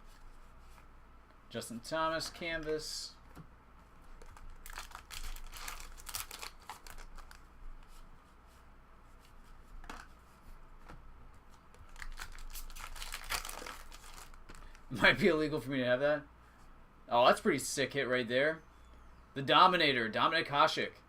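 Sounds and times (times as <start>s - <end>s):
wrappers tearing and crinkling: 4.2s - 7.4s, 11.9s - 14.8s.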